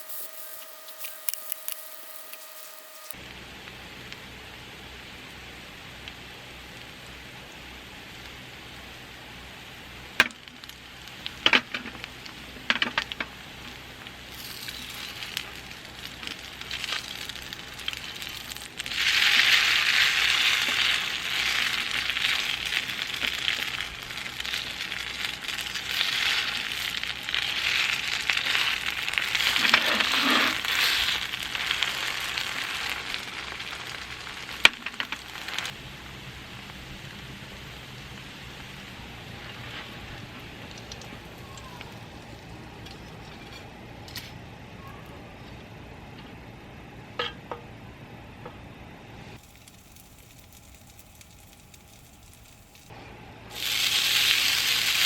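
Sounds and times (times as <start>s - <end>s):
food sizzling in a pan: 0.0s - 3.2s, 14.2s - 41.0s, 49.4s - 52.9s, 53.6s - 55.0s.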